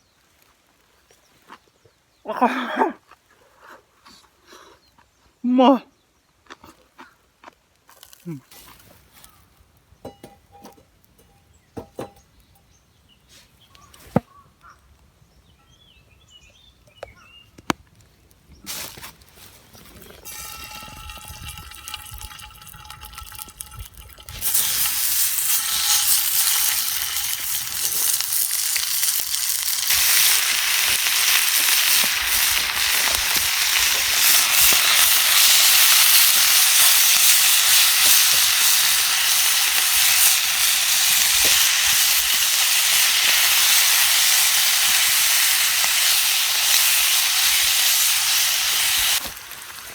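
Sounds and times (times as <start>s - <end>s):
food sizzling in a pan: 20.2s - 49.9s
hiss from heating pan: 24.2s - 49.9s.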